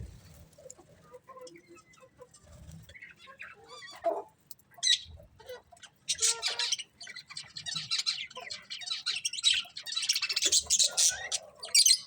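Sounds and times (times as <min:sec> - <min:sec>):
budgies chirping and chattering: 0:04.8 - 0:12.0.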